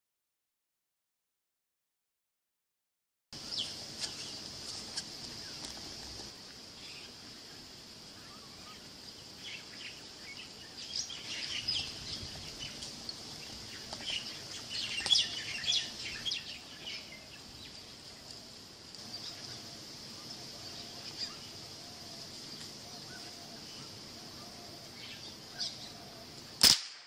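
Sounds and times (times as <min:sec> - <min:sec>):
small birds chirping: 0:03.4 - 0:26.6
high-pitched hiss: 0:03.4 - 0:27.0
sharp click: 0:26.6 - 0:27.0.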